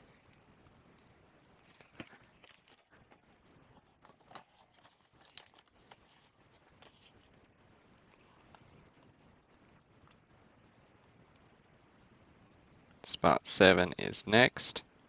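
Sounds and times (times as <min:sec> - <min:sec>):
trading cards rustling and clicking: 0:01.6 - 0:09.2.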